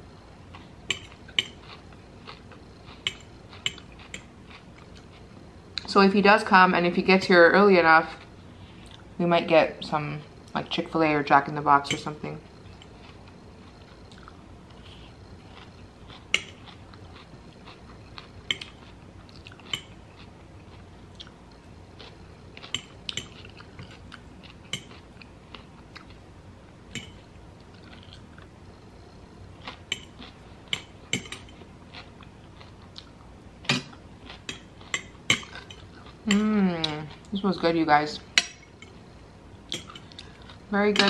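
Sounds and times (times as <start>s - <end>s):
fork tapping and scraping plate: 3.0s - 4.3s
close-up chewing: 12.6s - 26.2s, 27.6s - 33.3s.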